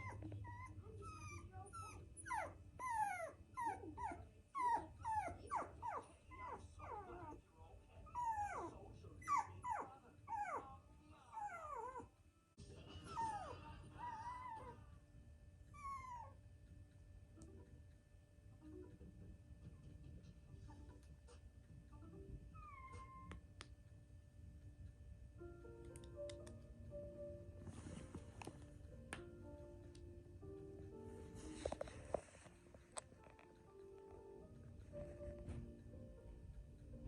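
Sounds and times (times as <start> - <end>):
puppy whining and yelping: 0.0 - 7.4, 8.0 - 10.7, 11.3 - 12.2, 13.0 - 14.8, 15.7 - 16.4, 22.4 - 23.5.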